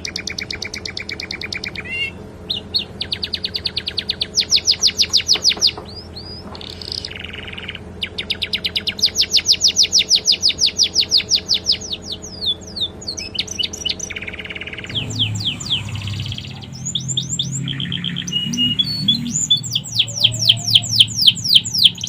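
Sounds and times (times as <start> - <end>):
canary singing trills: 0.0 - 22.0
faint low hum: 10.6 - 22.0.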